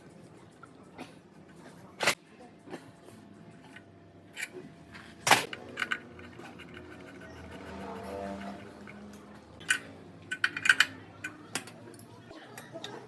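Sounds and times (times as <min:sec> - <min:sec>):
metal parts clicking and knocking: 0:05.2 - 0:12.3.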